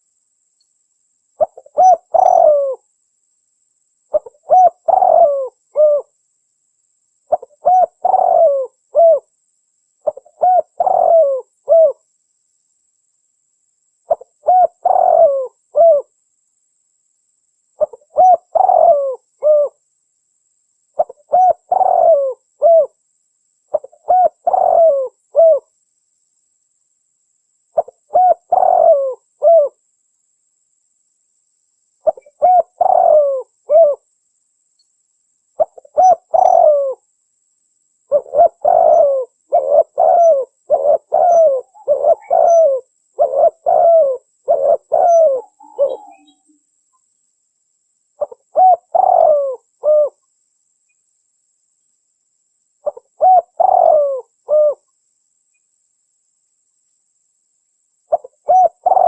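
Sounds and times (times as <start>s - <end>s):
dove cooing: 1.4s - 2.8s, 4.1s - 6.1s, 7.3s - 9.3s, 10.0s - 12.0s, 14.1s - 16.1s, 17.8s - 19.8s, 21.0s - 23.0s, 23.7s - 25.7s, 27.8s - 29.8s, 32.0s - 34.0s, 35.6s - 37.0s, 38.1s - 46.6s, 48.2s - 50.2s, 52.8s - 54.8s, 58.1s - 59.0s.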